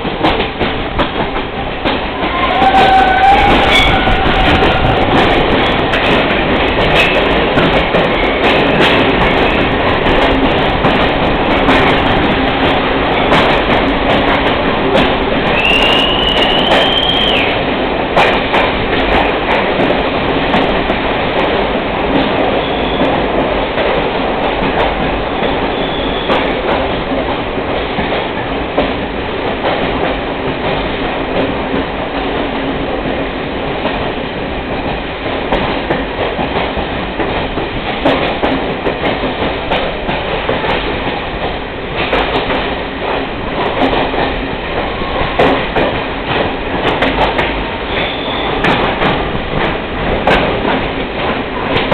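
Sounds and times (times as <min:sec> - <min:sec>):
rail clicks: 0:00.0 - 0:51.9
train wheels rumbling on rails: 0:00.0 - 0:51.9
faint high squeals: 0:02.4 - 0:04.6.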